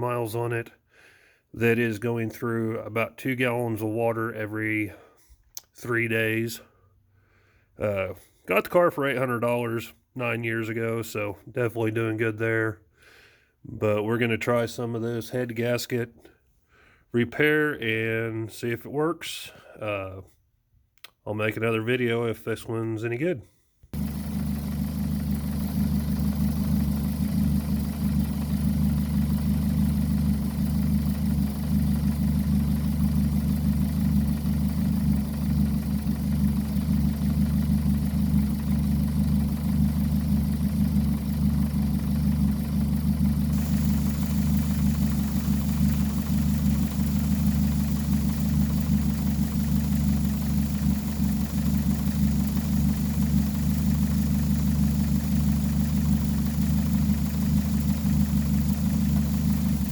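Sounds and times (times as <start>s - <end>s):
car engine idling: 24.0s - 59.9s.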